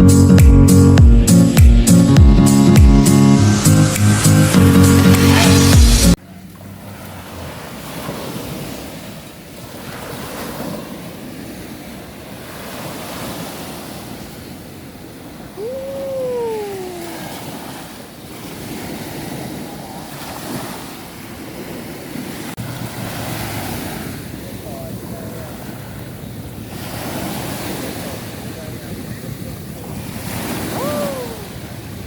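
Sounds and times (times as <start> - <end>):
short rising and sliding tone: 0.0 - 7.5
sea waves washing ashore: 3.0 - 32.0
wind on microphone: 7.3 - 32.0.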